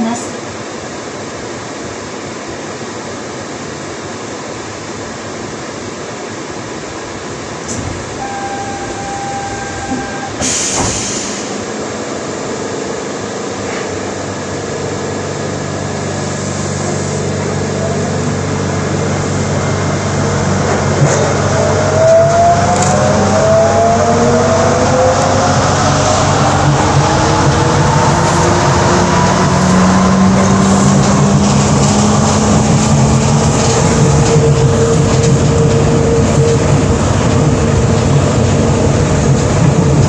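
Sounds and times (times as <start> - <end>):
rising whine: 7.7 - 10.5, 14.2 - 40.0
brief tone: 8.0 - 10.6
low drone: 11.3 - 40.0
tyres roaring on concrete: 15.9 - 40.0.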